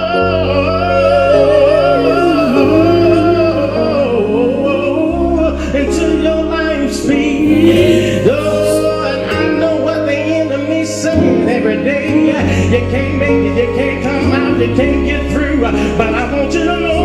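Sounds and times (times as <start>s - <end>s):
person singing gospel: 0.0s - 17.0s.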